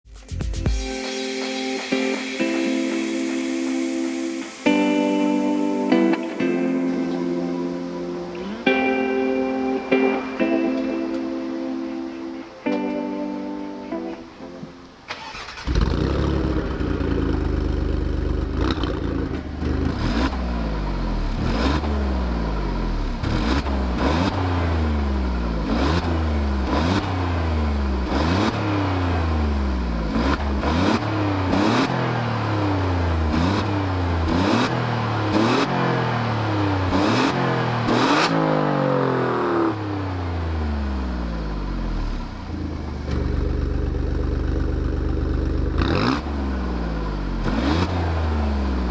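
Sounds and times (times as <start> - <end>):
car engine revving: 15.0 - 48.9
exhaust cracks: 15.1 - 22.3, 42.1 - 46.4.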